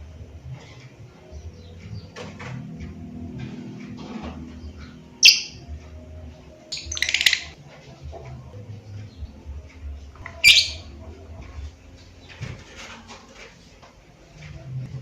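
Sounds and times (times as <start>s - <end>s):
bird chattering trill: 6.8s - 7.5s, 10.4s - 10.8s
bird shrieking: 10.4s - 10.8s.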